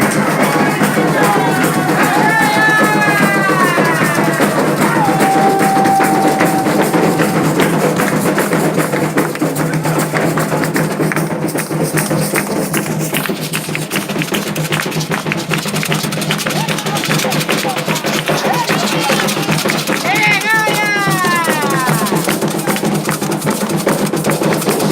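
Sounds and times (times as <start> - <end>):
people singing: 0.0 - 8.3
hand drums beating fast rhythm: 0.0 - 24.9.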